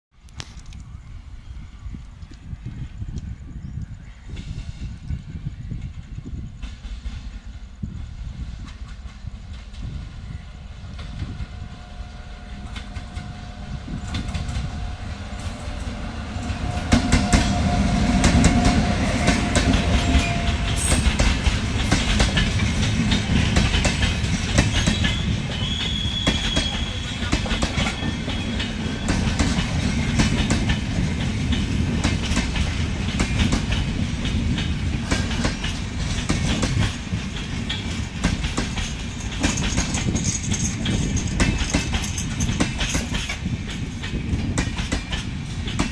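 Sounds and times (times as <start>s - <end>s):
train rumble: 0.3s - 45.9s
train coaches rattling: 4.3s - 45.9s
wheels clicking over rail joints: 16.4s - 45.9s.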